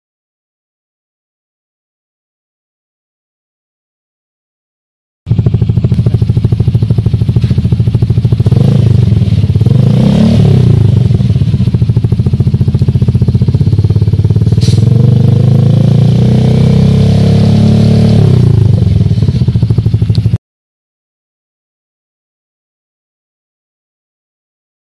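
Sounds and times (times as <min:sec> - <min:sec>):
scooter engine revving: 0:05.3 - 0:20.4.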